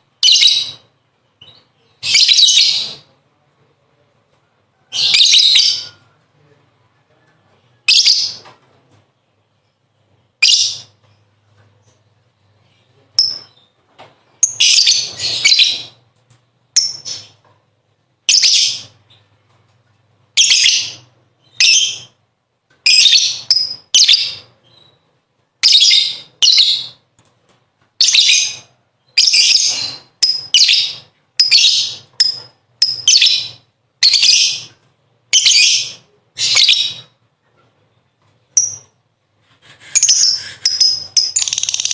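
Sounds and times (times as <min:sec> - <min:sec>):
lovebird chattering: 0:40.0 - 0:41.9.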